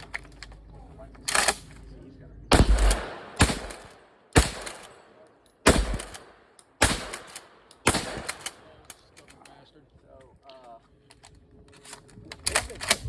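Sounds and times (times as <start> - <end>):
gunshots with echo: 2.5 - 8.7.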